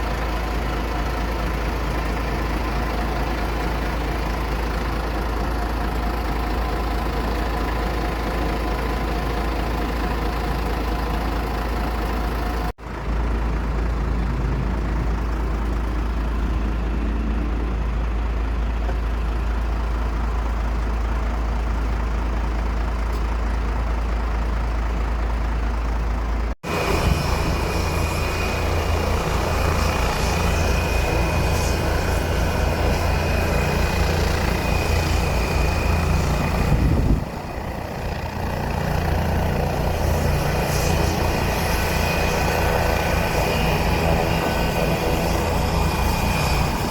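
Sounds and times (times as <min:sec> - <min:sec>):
low engine rumble: 0:00.0 - 0:46.9
faint high whine: 0:26.7 - 0:46.9.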